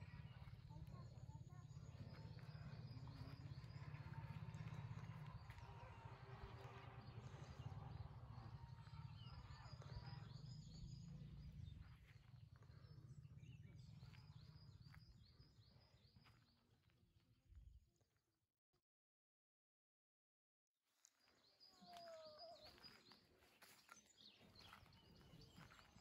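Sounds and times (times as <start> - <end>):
faint songbirds: 0.0 - 17.8, 21.0 - 26.0.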